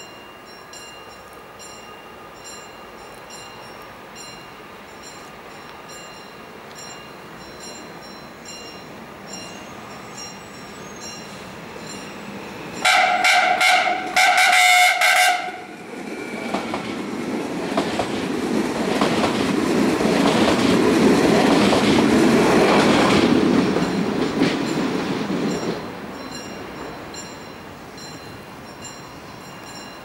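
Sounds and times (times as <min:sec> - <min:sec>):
train rumble and wheel clatter: 0:00.0 - 0:30.0
train horn blasts: 0:12.8 - 0:15.8.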